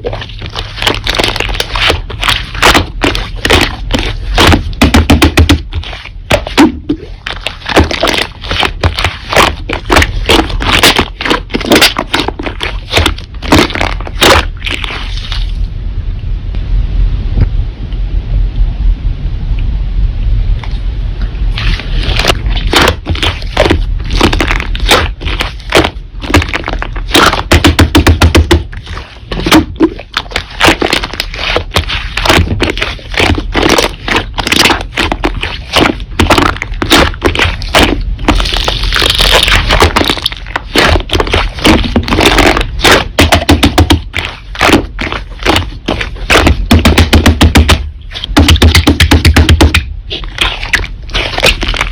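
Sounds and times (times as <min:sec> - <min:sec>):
slime squeezed by hand crackling: 0:05.6 - 0:15.6.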